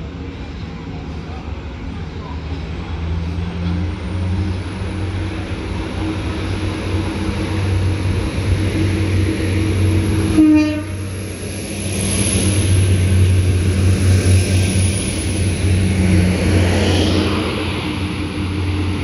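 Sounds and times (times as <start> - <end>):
diesel engine humming: 4.2 - 19.0
train rolling hiss: 4.2 - 19.0
train horn blast: 10.2 - 11.2.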